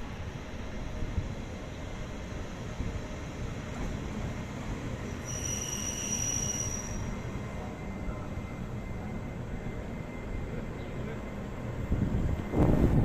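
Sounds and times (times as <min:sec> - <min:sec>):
train rumbling on rails: 0:00.0 - 0:13.0
high-pitched squeal: 0:05.2 - 0:07.2.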